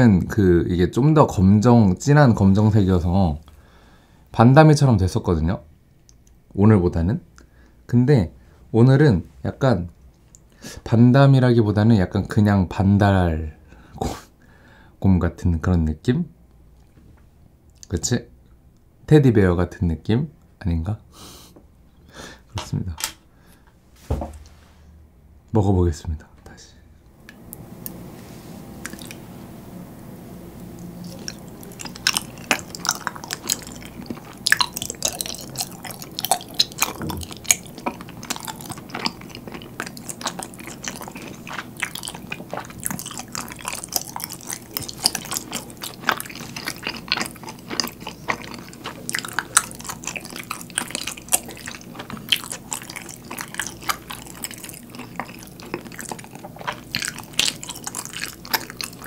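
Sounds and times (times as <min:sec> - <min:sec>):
close chewing mouth sounds: 0:28.8 - 0:29.2, 0:30.8 - 0:59.0.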